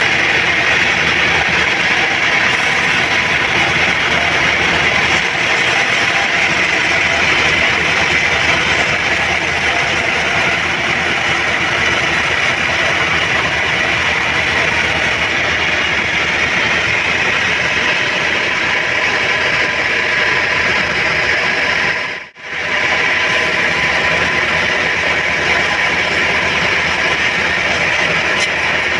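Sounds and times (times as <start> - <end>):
bandsaw sawmill running: 0.0 - 28.9.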